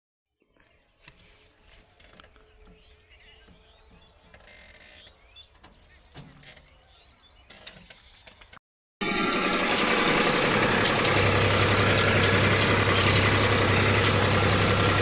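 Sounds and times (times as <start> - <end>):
bird chirps: 0.3 - 8.6.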